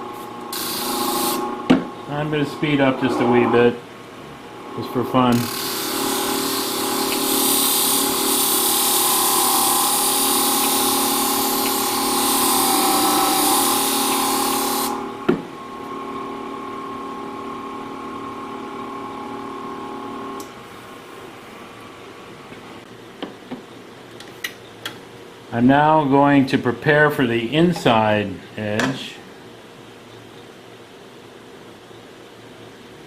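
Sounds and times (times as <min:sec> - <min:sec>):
sharpening machine motor humming: 0:00.0 - 0:03.8, 0:04.4 - 0:20.5
blade grinding hiss: 0:00.5 - 0:01.5, 0:05.4 - 0:15.0.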